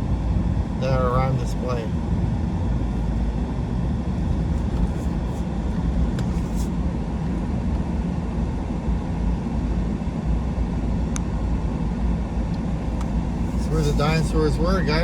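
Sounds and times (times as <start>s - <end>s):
truck engine and road rumble: 0.0s - 15.0s.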